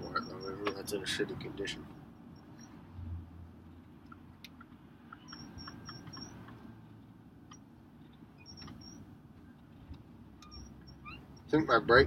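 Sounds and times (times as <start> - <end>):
short high squeaks: 0.0 - 0.7, 2.2 - 2.8, 5.1 - 6.5, 8.3 - 9.1, 10.4 - 11.6
road and engine rumble in cab: 0.0 - 12.0.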